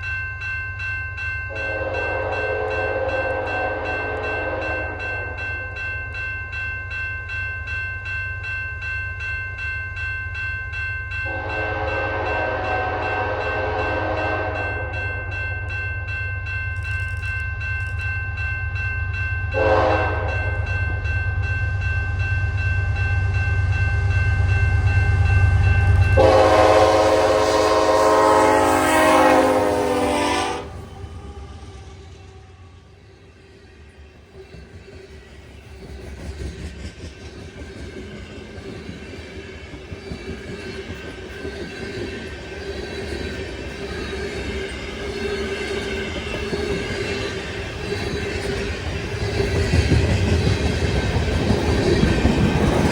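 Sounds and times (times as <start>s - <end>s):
train horn blasts: 1.5s - 5.4s, 11.2s - 14.9s, 19.5s - 20.6s, 26.1s - 31.0s
train rumble: 8.4s - 52.9s.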